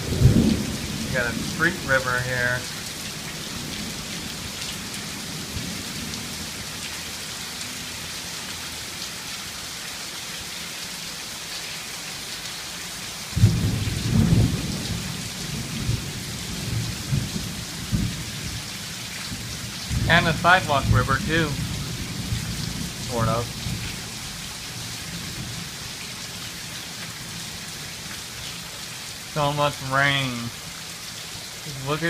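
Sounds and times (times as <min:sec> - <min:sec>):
thunder rumbling: 0:00.0 - 0:02.7, 0:13.4 - 0:18.7, 0:19.3 - 0:24.5
heavy rain pouring onto road: 0:00.0 - 0:32.0.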